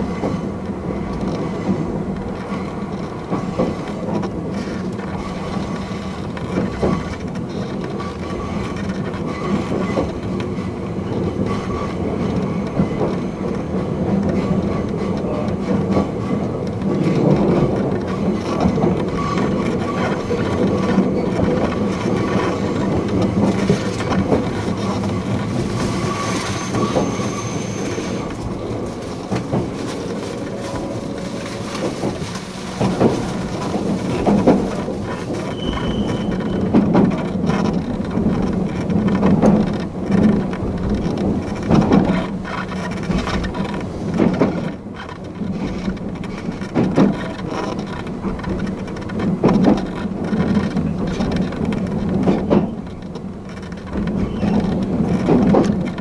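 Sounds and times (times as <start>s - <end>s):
wheels clacking over rail joints: 0.0s - 56.0s.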